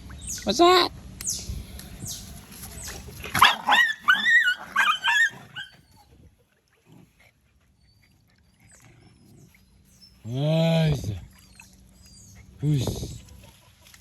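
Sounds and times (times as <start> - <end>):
otters squealing calls: 2.1 - 6.1.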